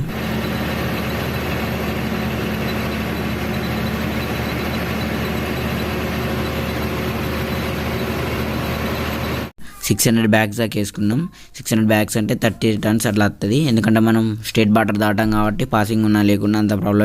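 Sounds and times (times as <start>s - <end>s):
lorry engine droning: 0.0s - 9.5s.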